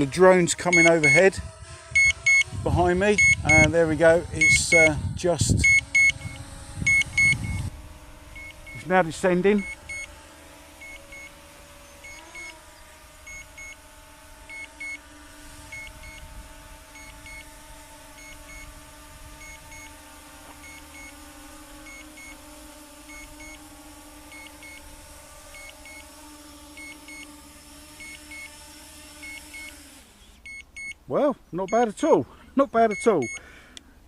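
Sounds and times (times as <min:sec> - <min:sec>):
drone propellers humming: 0:00.0 - 0:30.8
paired electronic beeps: 0:00.7 - 0:01.3, 0:02.0 - 0:02.5, 0:03.2 - 0:03.7, 0:04.4 - 0:04.9, 0:05.6 - 0:07.6, 0:09.6 - 0:10.1, 0:30.5 - 0:31.0, 0:32.9 - 0:33.4.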